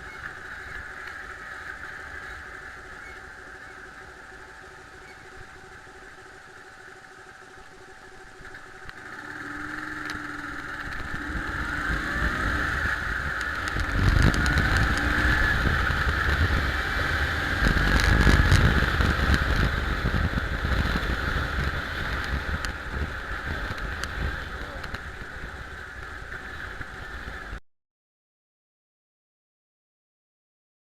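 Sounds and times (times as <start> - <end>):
motorcycle engine revving: 0.0 - 27.6.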